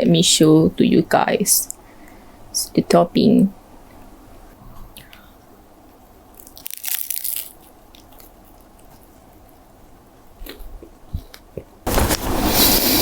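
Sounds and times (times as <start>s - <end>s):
crispy pastry crunch: 6.3s - 9.6s
chewing crunches: 6.4s - 9.2s.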